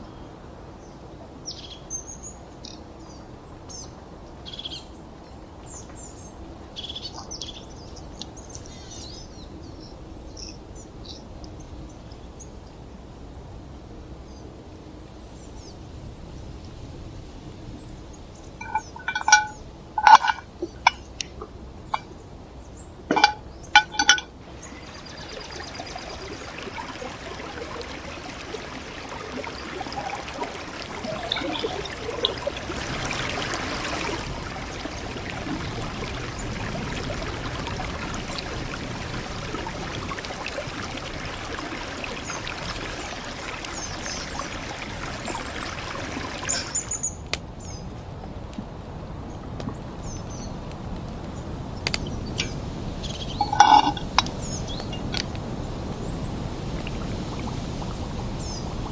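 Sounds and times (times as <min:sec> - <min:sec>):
water pouring: 0:18.6 - 0:20.5, 0:23.1 - 0:47.1, 0:52.3 - 0:58.9.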